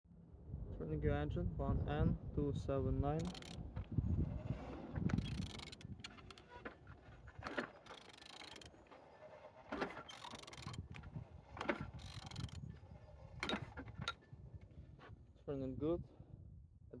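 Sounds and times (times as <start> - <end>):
engine turned over with wrench: 3.2 - 3.6, 5.1 - 6.6, 7.4 - 12.7, 13.4 - 14.2
ratchet clicking: 3.2 - 3.6, 5.2 - 6.5, 7.8 - 8.7, 10.1 - 11.0, 12.0 - 12.6.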